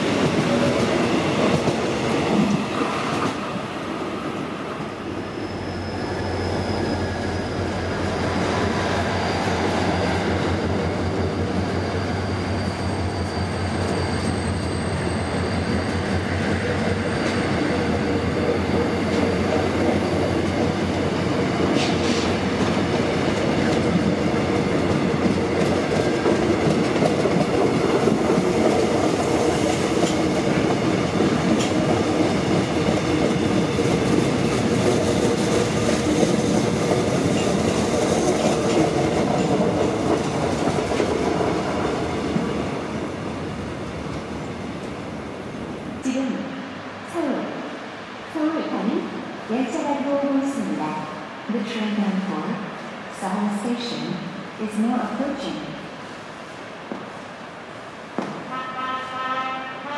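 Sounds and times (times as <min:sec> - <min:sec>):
train wheels clattering on rails: 0:00.0 - 0:03.6, 0:06.7 - 0:42.8, 0:58.1 - 0:58.6.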